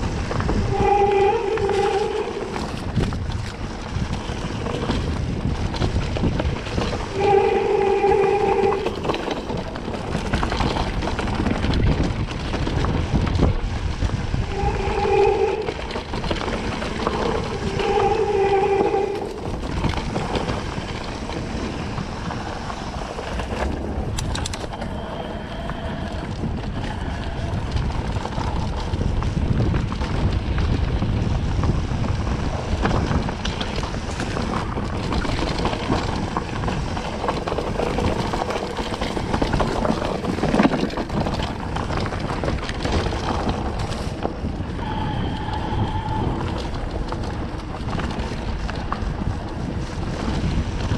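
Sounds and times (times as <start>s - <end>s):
wind buffeting microphone: 0.0s - 50.9s
short squeals: 0.6s - 2.8s
mountain bike rattling: 1.4s - 7.6s, 8.2s - 50.9s.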